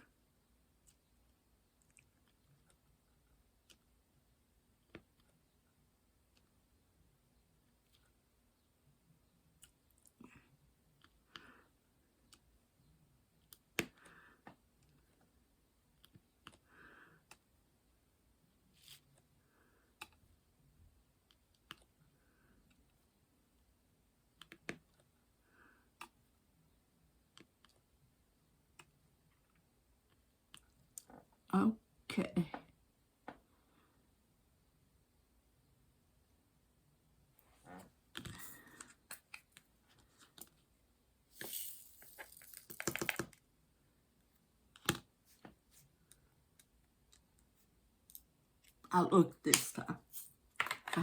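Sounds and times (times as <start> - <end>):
small plastic pieces clicking: 41.4 - 43.4.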